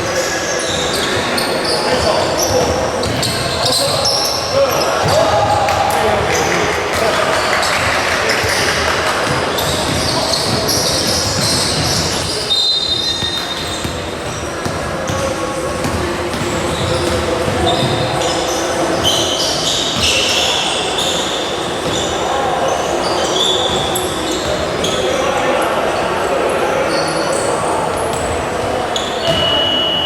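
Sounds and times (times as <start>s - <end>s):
crowd chatter: 0.0s - 30.0s
shoe squeaks: 0.1s - 5.2s, 9.5s - 15.2s, 16.4s - 25.2s, 26.8s - 30.0s
basketball bouncing on court: 1.9s - 4.1s, 7.3s - 18.2s, 29.2s - 29.6s.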